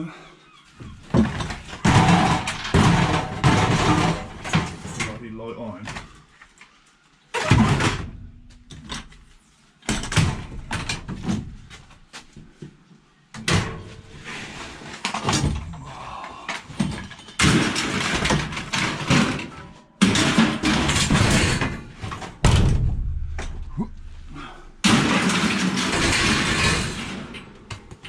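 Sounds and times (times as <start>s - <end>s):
scrap metal crashing down: 1.5s - 4.8s, 17.3s - 27.6s.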